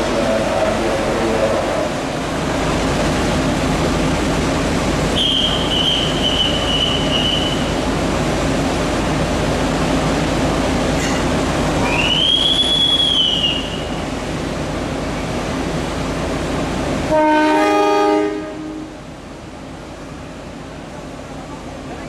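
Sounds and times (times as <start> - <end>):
train rumbling on rails: 0.0 - 22.0
two-note train horn: 17.1 - 19.0.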